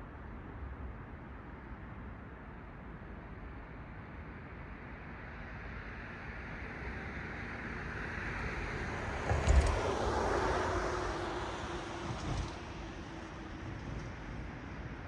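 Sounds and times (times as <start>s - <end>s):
car tyre noise passing: 8.5s - 14.8s.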